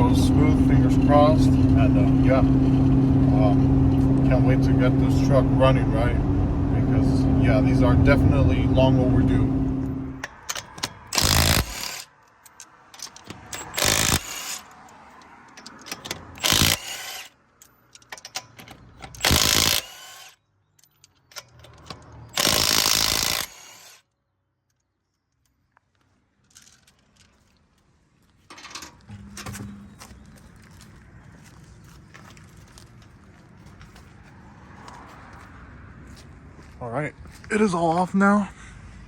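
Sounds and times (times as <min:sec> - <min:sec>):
metal clatter: 0:10.2 - 0:20.0, 0:28.5 - 0:30.3
ratcheting: 0:10.2 - 0:24.0
power tool bursts: 0:11.0 - 0:12.1, 0:13.6 - 0:14.7, 0:16.3 - 0:17.3, 0:19.1 - 0:20.4, 0:22.3 - 0:24.0.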